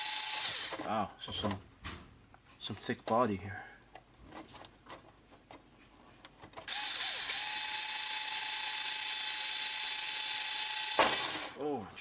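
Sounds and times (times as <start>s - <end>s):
electric drill whining: 0.0s - 0.8s, 6.7s - 11.6s.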